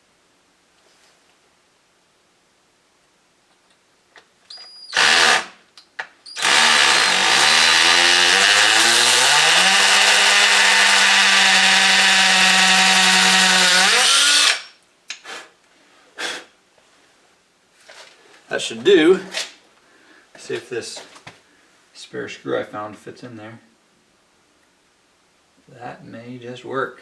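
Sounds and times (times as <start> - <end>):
hammer drill boring into concrete: 4.9 - 5.6, 6.4 - 14.8.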